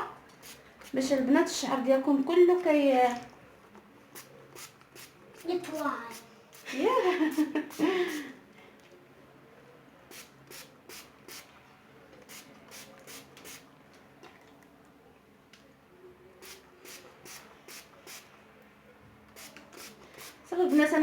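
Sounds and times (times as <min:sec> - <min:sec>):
spray bottle squirts: 0:04.2 - 0:05.2, 0:10.1 - 0:11.5, 0:12.2 - 0:13.6, 0:16.4 - 0:18.3, 0:19.4 - 0:20.4.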